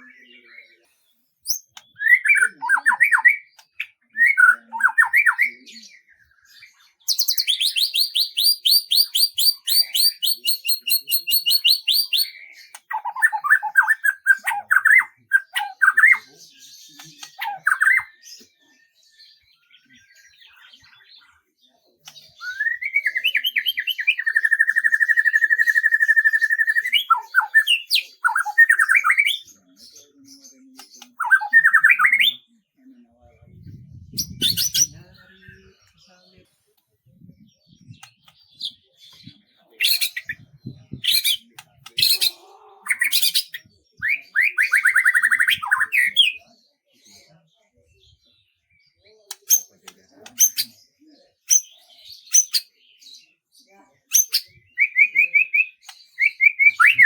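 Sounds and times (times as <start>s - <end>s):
songbird singing trills: 0.0s - 53.4s, 54.1s - 57.0s.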